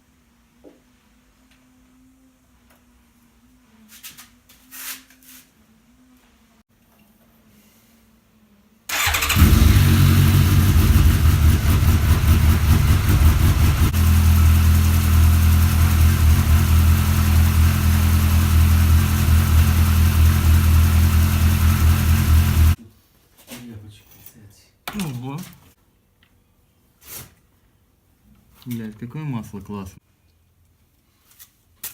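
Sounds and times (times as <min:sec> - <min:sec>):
motorcycle engine running: 0:08.9 - 0:22.8.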